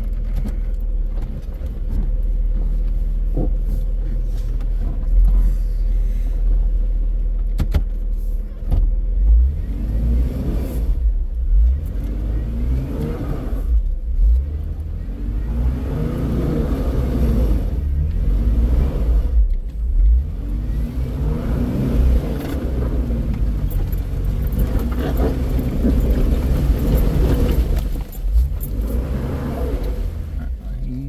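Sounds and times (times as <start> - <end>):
engine revving under load: 9.1 - 31.0.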